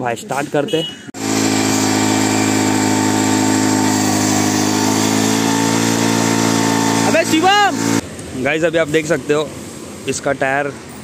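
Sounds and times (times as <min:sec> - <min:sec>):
motorcycle engine at high revs: 0:01.2 - 0:08.0.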